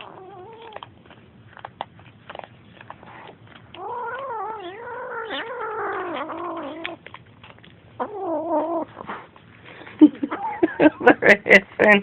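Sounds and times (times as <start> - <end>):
kitten growling: 0.0 - 0.9, 3.0 - 9.4.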